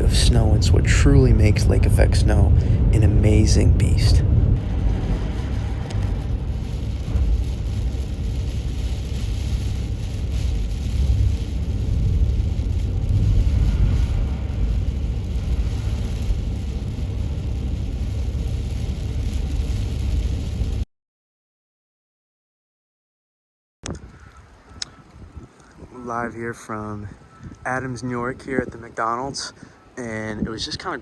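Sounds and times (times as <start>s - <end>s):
car road noise rumble: 0.0s - 20.8s.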